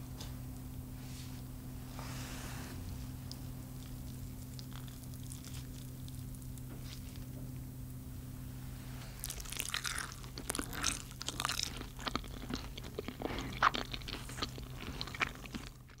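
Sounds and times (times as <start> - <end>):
steady low hum: 0.0 - 16.0
crunchy chewing: 3.2 - 7.3, 9.2 - 16.0.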